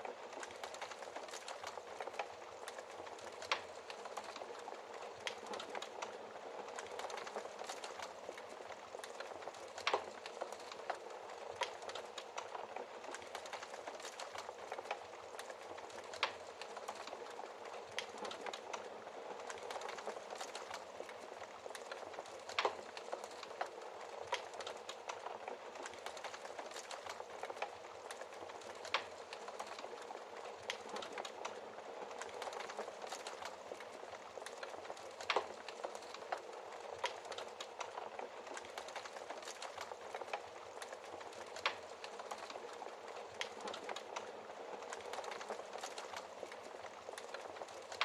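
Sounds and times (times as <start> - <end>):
fire popping: 0.0 - 48.0
wood fire crackling: 0.0 - 48.0.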